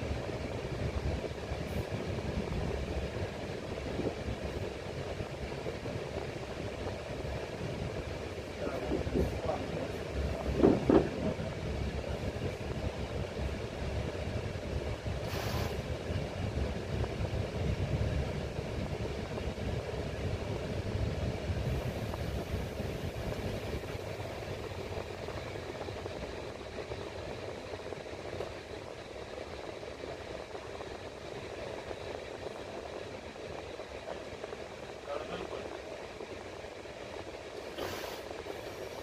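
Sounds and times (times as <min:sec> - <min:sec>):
train rumbling inside carriage: 0:00.0 - 0:39.0
sharp hiss: 0:15.2 - 0:15.9, 0:37.6 - 0:39.0.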